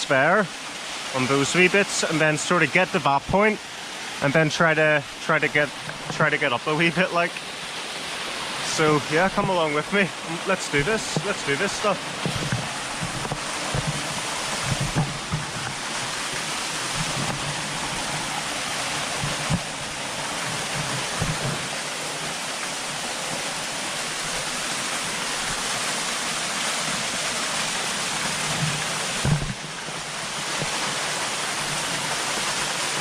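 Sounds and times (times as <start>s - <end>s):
waterfall falling onto rocks: 0.0s - 33.0s
soft low thumps: 12.1s - 18.2s.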